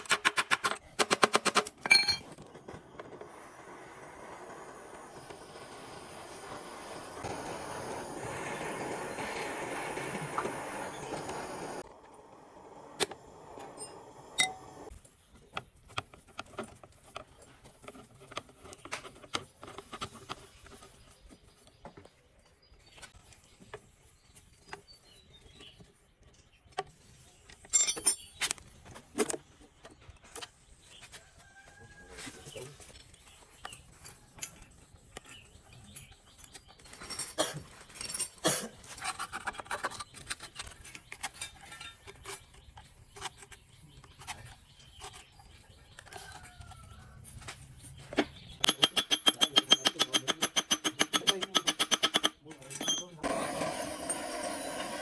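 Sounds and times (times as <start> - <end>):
metal tools clinking and knocking: 1.7 - 2.4, 27.6 - 28.5, 41.3 - 42.4, 48.6 - 53.3.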